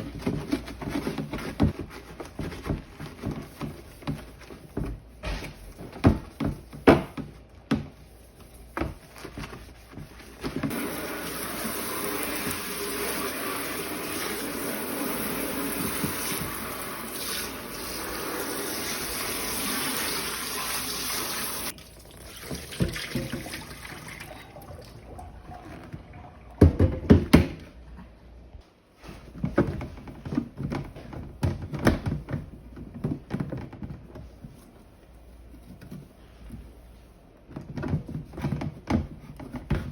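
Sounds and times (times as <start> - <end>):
kitchen tap running: 10.7 - 27.1.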